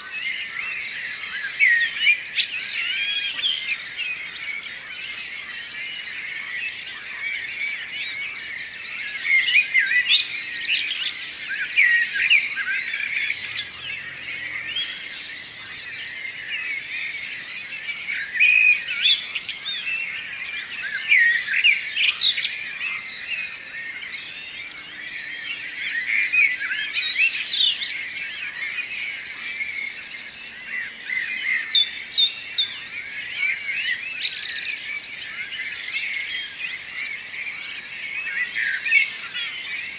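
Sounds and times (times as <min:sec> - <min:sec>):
dawn chorus of songbirds: 0:00.0 - 0:39.9.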